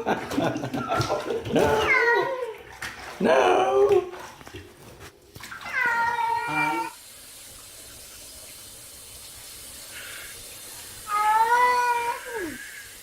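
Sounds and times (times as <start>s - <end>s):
cat meowing: 1.7s - 2.4s, 5.6s - 7.0s, 11.1s - 12.6s.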